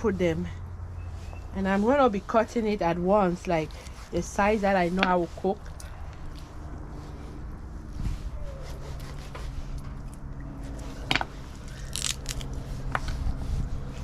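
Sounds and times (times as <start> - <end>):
low hum: 0.0 - 14.0
sharp bone cracks: 11.7 - 12.5.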